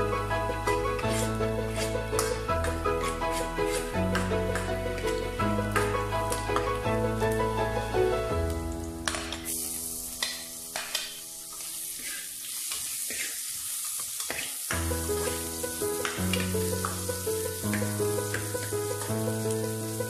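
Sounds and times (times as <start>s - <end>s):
background music: 0.0s - 12.0s, 14.7s - 20.0s
metal ladle scraping pan: 1.0s - 5.2s
garlic sizzling in oil: 8.4s - 20.0s.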